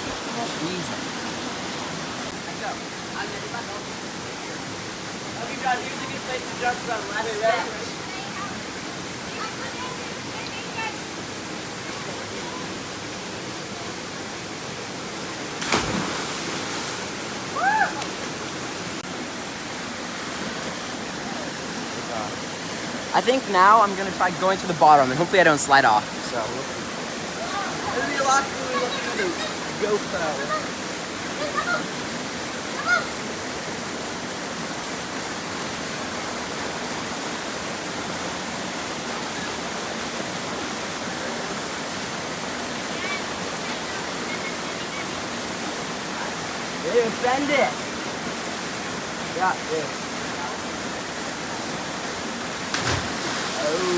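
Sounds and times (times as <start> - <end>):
waterfall rushing: 0.0 - 53.9
person splashing into water: 15.6 - 17.0, 52.7 - 53.9.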